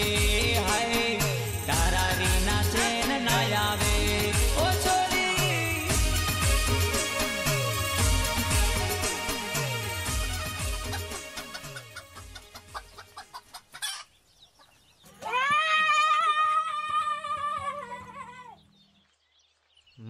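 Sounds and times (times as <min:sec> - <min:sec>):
soundtrack music: 0:00.0 - 0:12.4.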